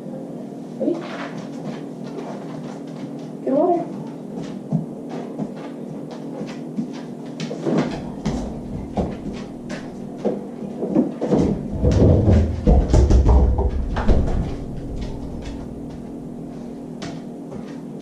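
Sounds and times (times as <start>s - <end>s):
knocks and clicks of door contents: 11.3s - 16.1s
low rumble and clatter: 11.4s - 17.0s.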